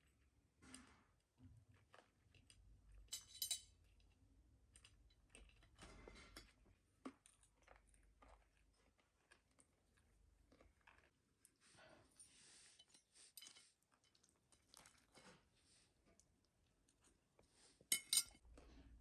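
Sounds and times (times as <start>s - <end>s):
faint clicks and clinks: 3.1s - 3.7s, 17.9s - 18.4s.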